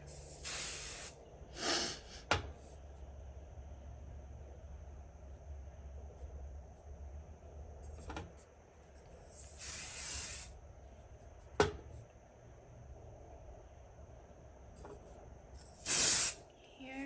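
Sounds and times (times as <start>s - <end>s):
aerosol spray hissing: 0.0s - 2.2s, 9.3s - 10.6s, 15.8s - 16.4s.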